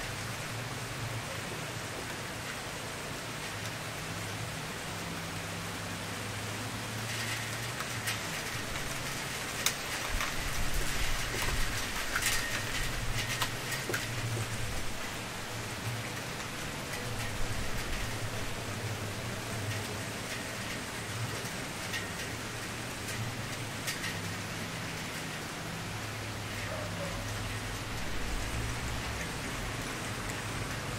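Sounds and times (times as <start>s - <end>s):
wood fire crackling: 6.9s - 26.4s.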